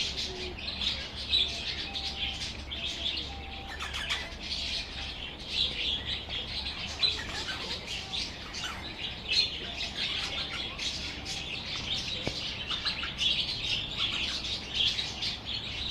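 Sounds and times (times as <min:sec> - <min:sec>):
parakeets chattering and chirping: 0:00.0 - 0:15.9.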